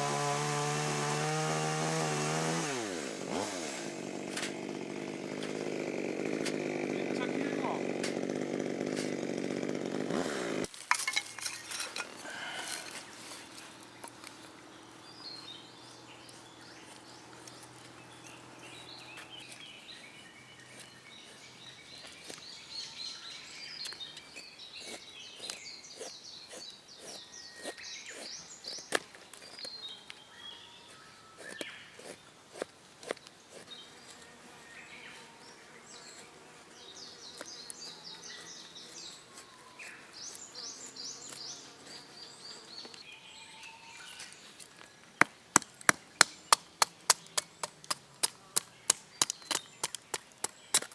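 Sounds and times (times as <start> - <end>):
birds chirping and singing: 10.9 - 32.4, 33.2 - 50.9
sharp clicks: 45.2 - 50.9.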